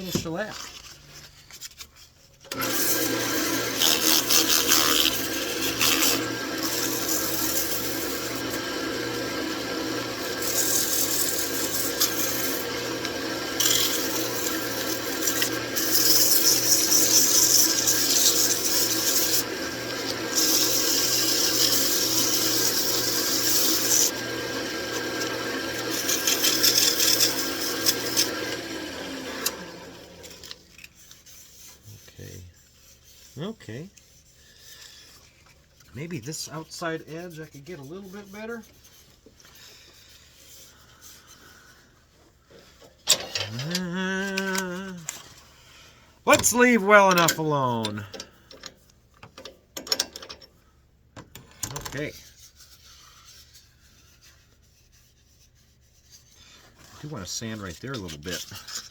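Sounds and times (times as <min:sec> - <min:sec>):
wood lathe motor hum: 0:02.5 - 0:30.6
sandpaper rubbing on wood: 0:10.4 - 0:12.6, 0:37.0 - 0:39.1.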